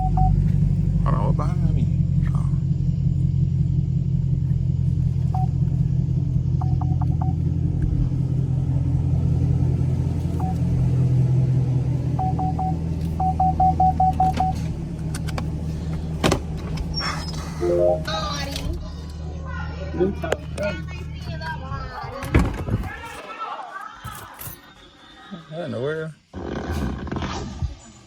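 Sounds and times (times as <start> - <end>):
electronic warning chime beeps: 0.0 - 0.4, 12.2 - 14.5, 17.6 - 18.4
car engine idling deep rumble: 0.0 - 22.2.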